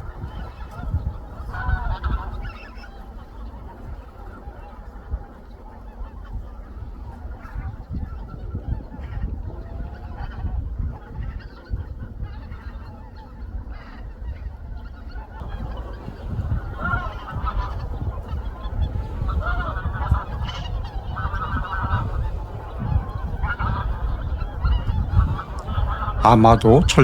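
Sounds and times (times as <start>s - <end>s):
geese honking: 15.4s - 27.0s.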